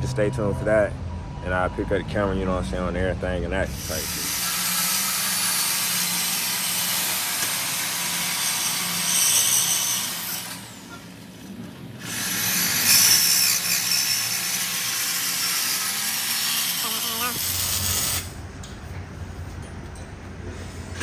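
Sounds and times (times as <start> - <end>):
power tool rasping and hissing: 3.7 - 11.2, 12.0 - 18.4.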